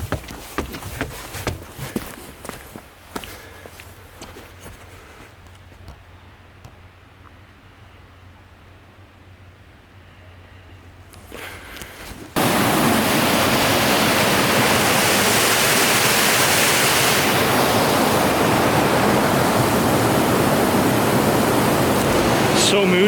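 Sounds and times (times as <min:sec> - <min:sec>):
loud rushing noise: 0:12.4 - 0:23.0.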